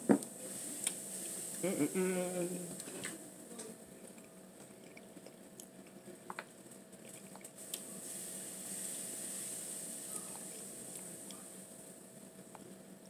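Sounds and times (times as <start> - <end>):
faint steady hum: 0.0 - 13.0
person chewing: 4.0 - 6.2.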